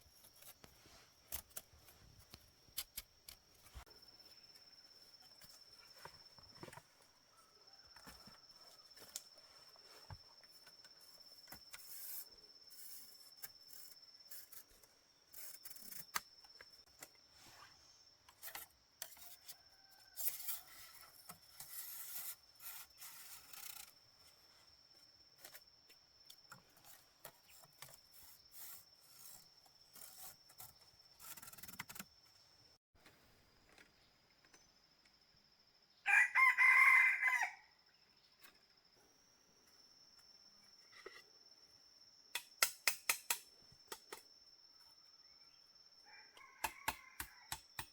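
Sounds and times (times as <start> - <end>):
faint scraping and rubbing: 17.2 - 24.8.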